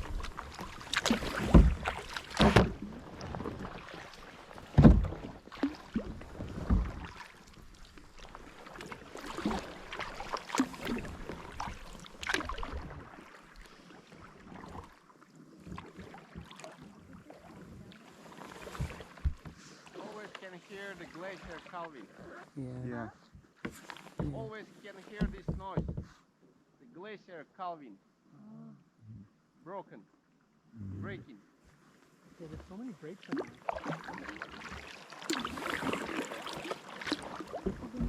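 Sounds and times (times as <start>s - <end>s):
paddle knocks: 0.0s - 3.8s, 4.6s - 7.3s, 18.7s - 19.6s, 23.6s - 26.2s, 33.4s - 38.0s
paddle strokes splashing: 0.0s - 22.5s, 23.6s - 26.2s, 31.7s - 38.0s.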